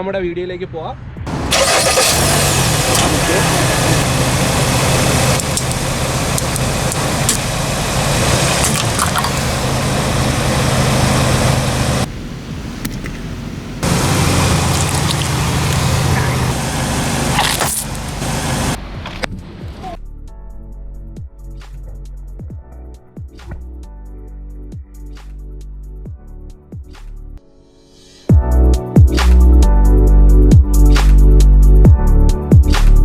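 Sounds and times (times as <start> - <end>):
car engine idling: 1.3 - 12.2, 13.8 - 19.9.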